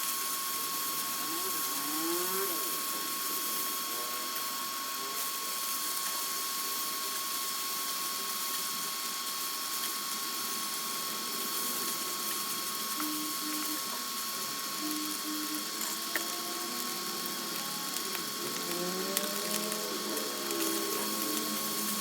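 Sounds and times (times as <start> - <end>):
rice sizzling in a pan: 0.0 - 22.0
high whine: 10.6 - 22.0.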